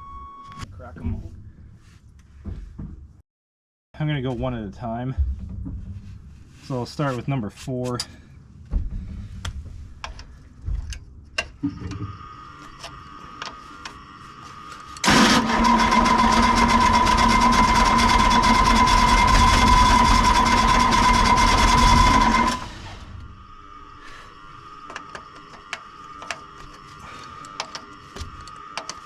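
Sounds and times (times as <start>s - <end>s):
diesel engine cranking on starter: 15.0s - 23.3s.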